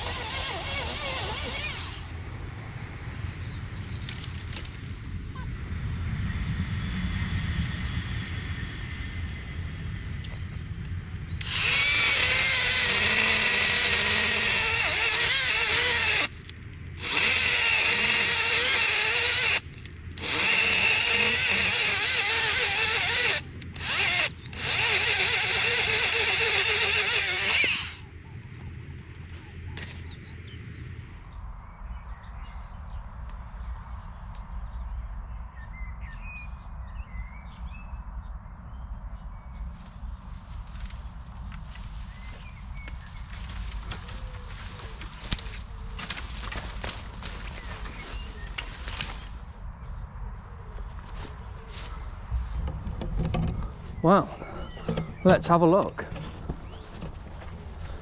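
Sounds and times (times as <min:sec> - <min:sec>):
chainsaw revving: 0:00.0 - 0:02.1, 0:11.4 - 0:16.4, 0:17.0 - 0:28.0.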